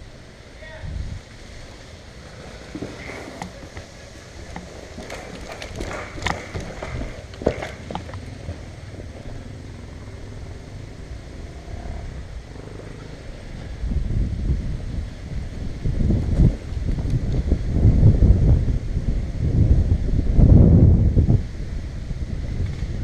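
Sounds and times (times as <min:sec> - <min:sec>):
wind rumbling on microphone: 0:00.0 - 0:23.0
brush rustling: 0:01.1 - 0:09.4
twigs snapping: 0:03.0 - 0:08.3.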